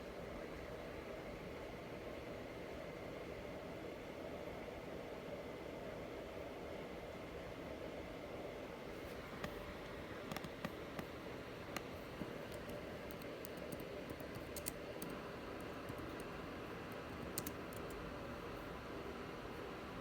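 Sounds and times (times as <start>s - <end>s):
light irregular clicks: 10.2s - 11.1s, 12.5s - 16.3s, 16.9s - 18.0s.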